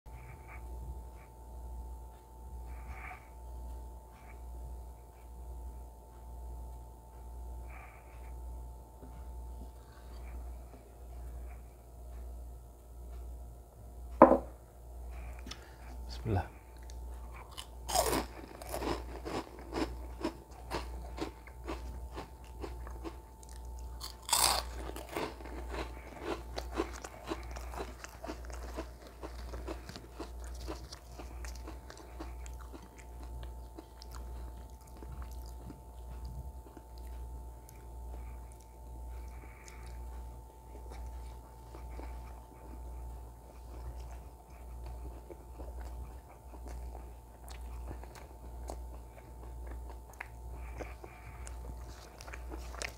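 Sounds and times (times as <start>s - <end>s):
chewing and crunching: 0.1s - 12.3s, 15.1s - 52.9s.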